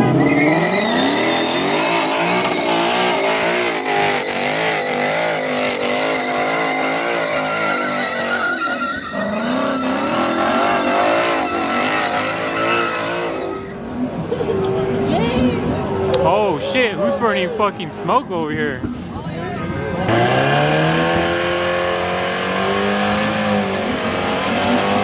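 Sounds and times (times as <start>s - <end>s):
car engine revving: 0.0s - 14.0s, 20.0s - 25.0s
tyres squealing: 0.0s - 14.0s.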